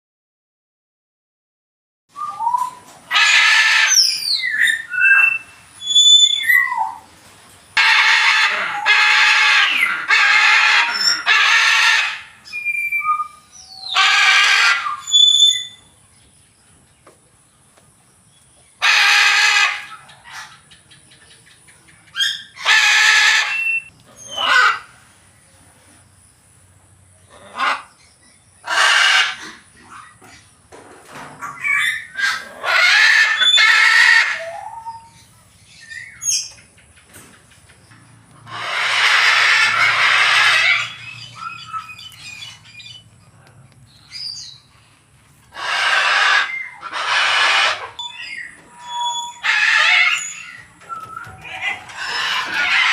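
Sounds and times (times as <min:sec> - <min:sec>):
macaw squawking: 0:07.8 - 0:15.8, 0:22.2 - 0:24.9, 0:31.4 - 0:35.2, 0:38.4 - 0:43.1, 0:45.5 - 0:52.9.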